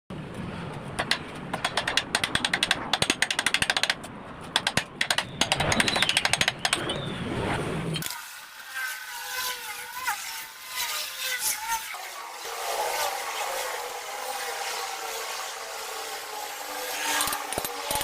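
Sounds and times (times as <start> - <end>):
power tool striking metal: 17.0 - 18.0.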